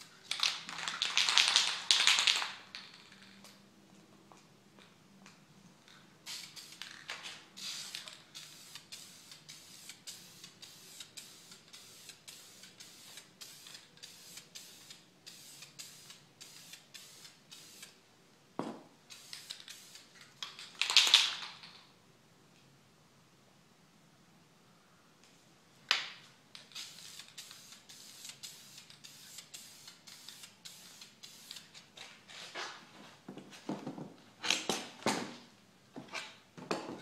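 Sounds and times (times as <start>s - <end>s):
spray paint can hissing: 6.2s - 18.0s, 19.1s - 21.3s, 26.6s - 31.8s.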